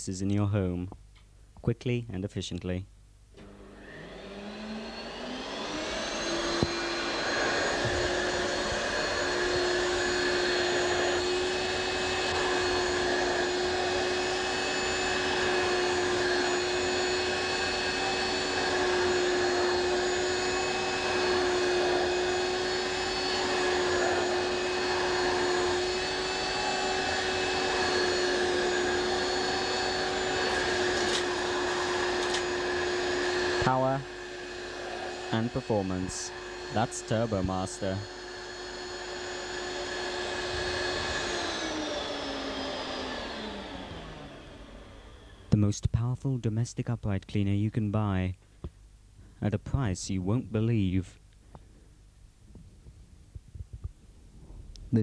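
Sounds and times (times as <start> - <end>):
vacuum cleaner click: 3.3 - 45.5
vacuum cleaner motor: 3.4 - 45.6.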